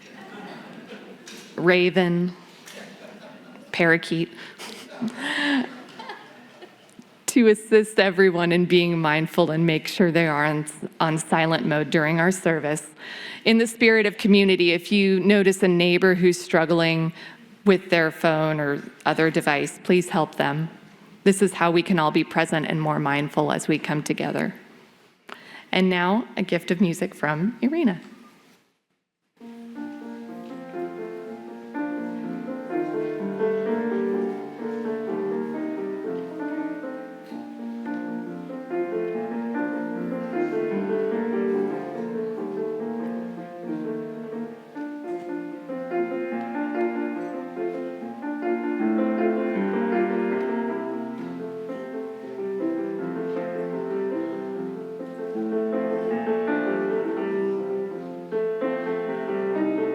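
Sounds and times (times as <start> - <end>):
solo classical piano piece: 29.4 - 59.9.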